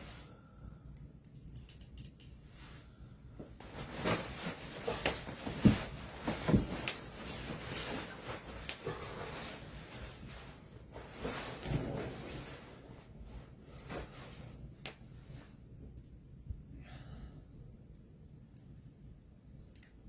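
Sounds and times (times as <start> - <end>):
rustling and handling noises: 1.4 - 16.2.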